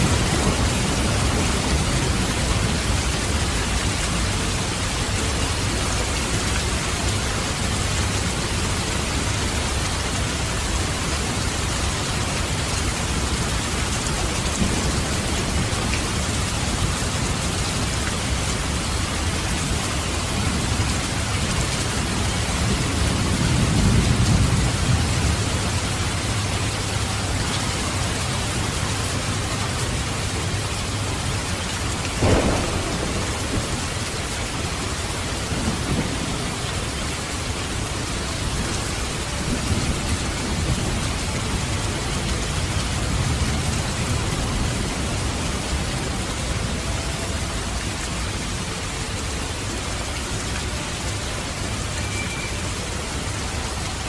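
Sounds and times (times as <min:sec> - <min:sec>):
low roll of thunder: 0:00.0 - 0:03.0, 0:32.2 - 0:36.7
heavy rain falling: 0:00.0 - 0:54.0.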